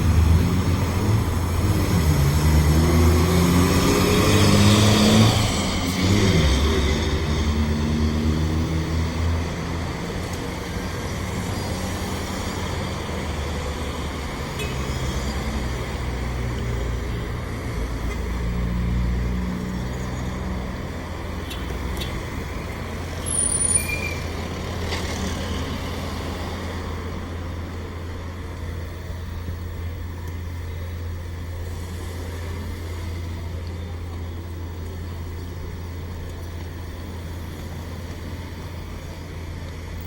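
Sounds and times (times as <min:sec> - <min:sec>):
turboprop engine humming: 0:25.8 - 0:40.0.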